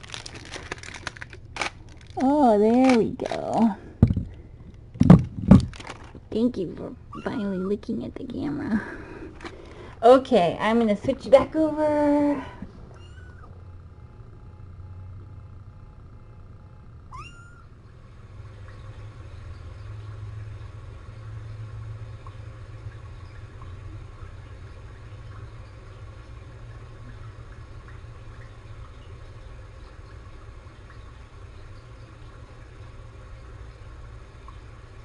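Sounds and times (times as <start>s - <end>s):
steady low hum: 0.0s - 35.0s
cat meowing: 7.1s - 7.7s, 13.0s - 13.5s, 17.1s - 17.7s.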